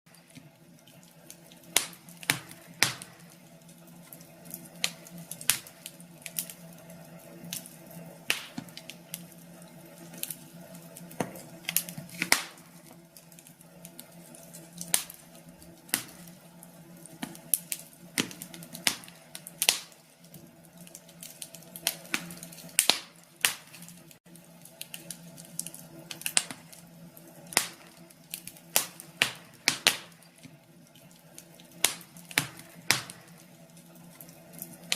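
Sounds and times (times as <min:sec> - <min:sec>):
wood fire crackling: 0:00.1 - 0:34.9.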